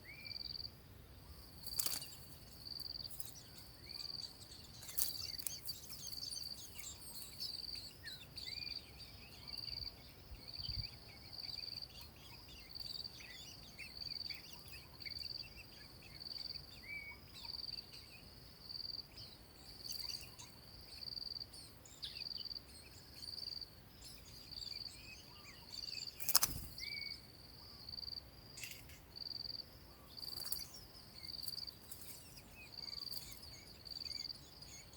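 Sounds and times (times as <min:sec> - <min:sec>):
faint bird chirps: 0:00.0 - 0:34.9
insect chirping: 0:00.0 - 0:34.9.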